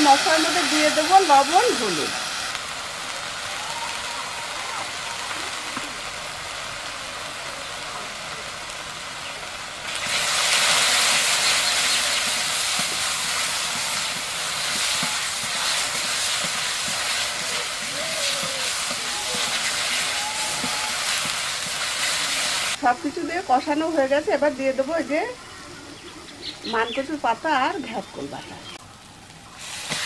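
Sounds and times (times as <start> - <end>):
paste sizzling in hot oil: 0.0 - 3.5, 5.7 - 25.4, 29.5 - 30.0
metal spatula stirring in wok: 10.1 - 22.8.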